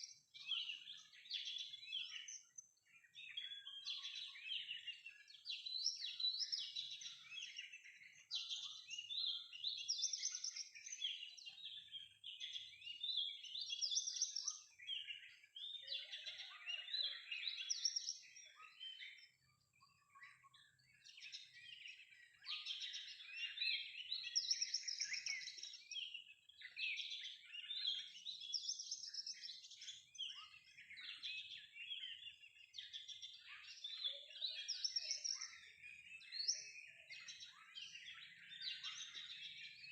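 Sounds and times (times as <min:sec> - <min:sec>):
bird song whistling and chattering: 0:21.1 - 0:39.9.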